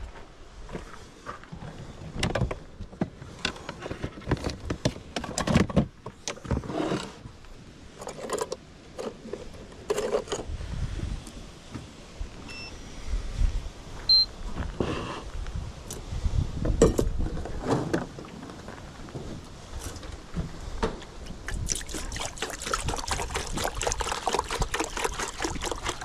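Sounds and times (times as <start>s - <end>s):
electronic beep: 14.1s - 14.3s.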